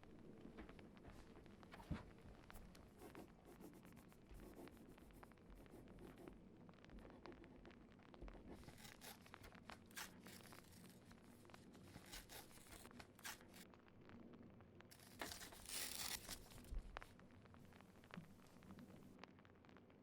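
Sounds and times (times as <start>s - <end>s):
faint scratching and ticking: 0.0s - 19.8s
paper tearing: 8.6s - 13.6s, 14.9s - 16.7s.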